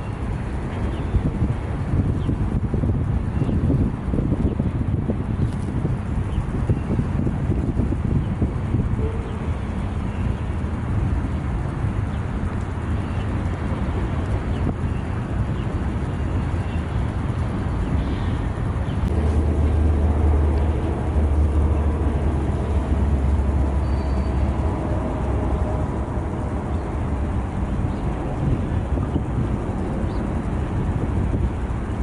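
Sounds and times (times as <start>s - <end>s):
freight train rumbling: 0.0s - 32.0s
low engine hum: 0.0s - 32.0s.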